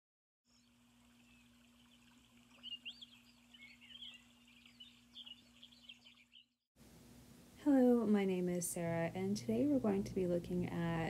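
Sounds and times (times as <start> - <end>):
birds chirping and twittering: 0.5 - 6.6.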